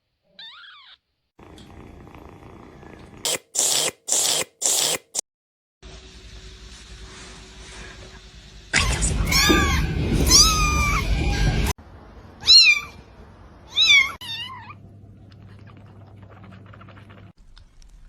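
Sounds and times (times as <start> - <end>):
kittens meowing: 0.4 - 1.0, 9.3 - 11.7, 12.4 - 13.0, 13.7 - 14.8.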